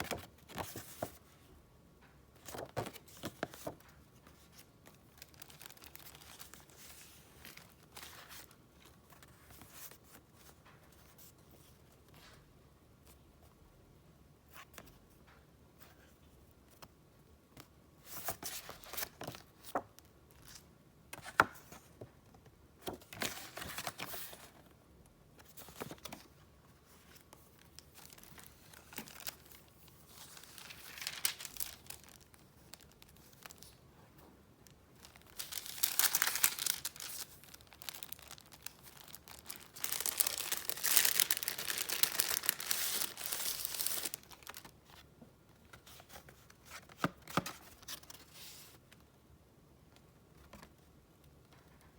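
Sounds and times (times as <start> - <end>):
gift wrapping paper rustling: 5.0 - 8.4, 27.6 - 33.8, 34.8 - 44.8.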